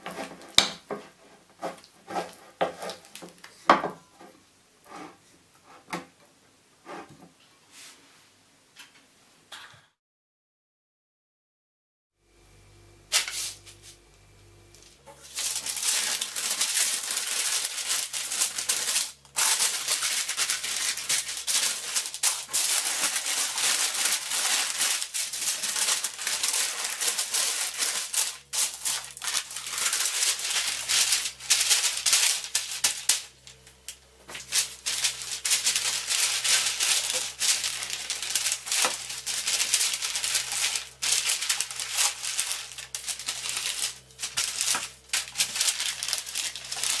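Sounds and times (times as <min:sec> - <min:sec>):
parchment paper crinkling: 0:14.8 - 0:47.0.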